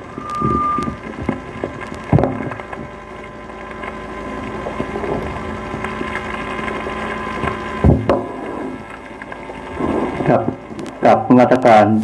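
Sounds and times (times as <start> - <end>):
steady high tone: 0.0 - 4.4
low hum: 0.0 - 11.7.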